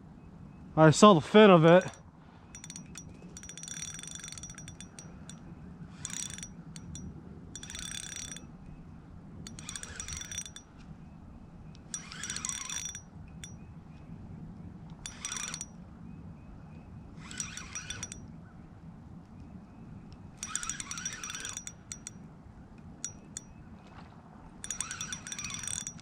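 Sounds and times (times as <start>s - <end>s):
fishing reel clicking: 1.7s - 8.5s, 9.5s - 10.8s, 11.7s - 13.6s, 15.0s - 15.8s, 17.2s - 18.2s, 20.4s - 22.2s, 23.0s - 23.5s, 24.6s - 26.0s.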